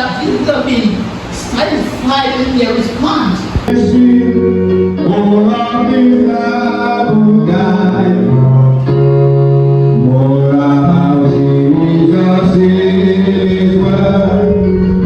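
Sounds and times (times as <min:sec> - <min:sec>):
keyboard with low bass notes: 0:03.4 - 0:15.0
people singing worship music: 0:03.6 - 0:09.0, 0:09.7 - 0:15.0.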